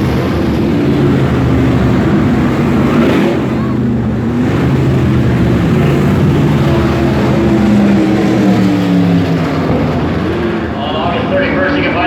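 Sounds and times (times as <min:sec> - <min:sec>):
race car engines running: 0:00.0 - 0:12.0.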